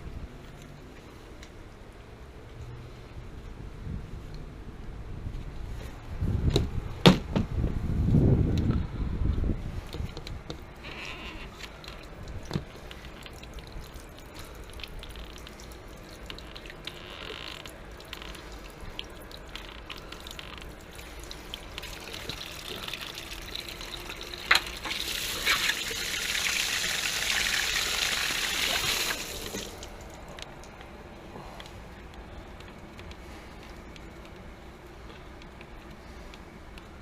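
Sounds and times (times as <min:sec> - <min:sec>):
water spraying from drain valve: 0:11.6 - 0:30.3.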